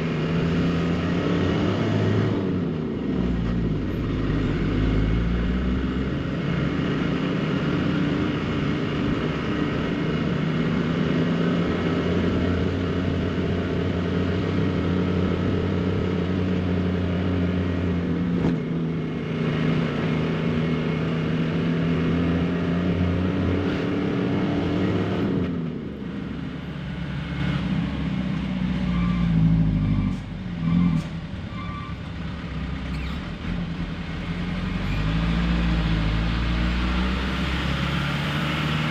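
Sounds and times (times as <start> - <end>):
truck engine running: 0.0 - 23.4.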